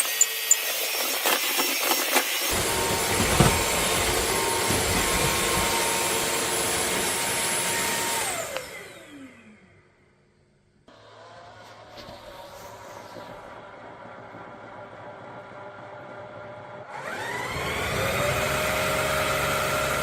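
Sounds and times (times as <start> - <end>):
vacuum motor whining: 0.0 - 9.9, 15.5 - 20.0.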